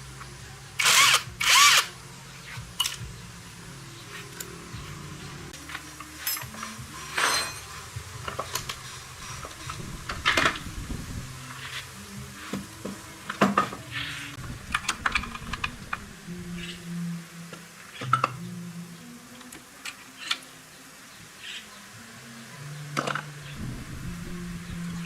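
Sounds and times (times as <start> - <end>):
metal tools clinking: 5.7 - 10.6.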